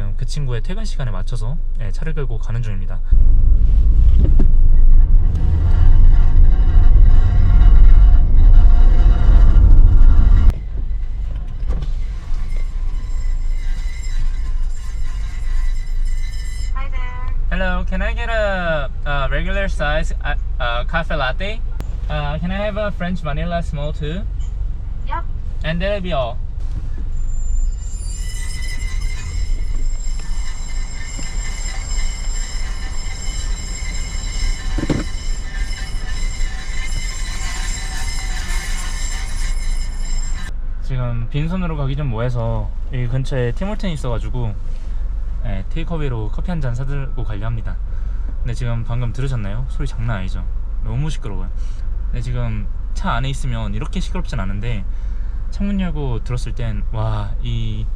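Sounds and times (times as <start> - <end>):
car road and engine rumble: 0.0 - 57.9
steady car interior noise: 2.6 - 6.8
brake metal scraping squeal: 2.8 - 40.6, 42.2 - 51.8.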